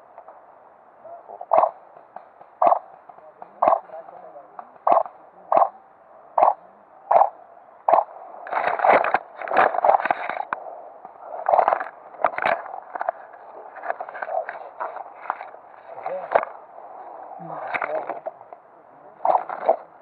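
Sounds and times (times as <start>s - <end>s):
vegetation and gear rustling: 11.2s - 18.2s.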